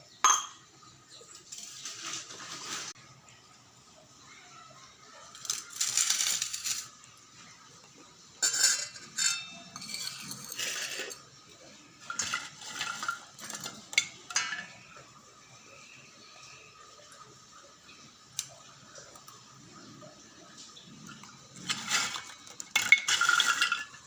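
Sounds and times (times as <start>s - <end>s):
dishes and utensils clattering: 0.1s - 3.0s, 5.2s - 15.2s, 20.3s - 24.0s.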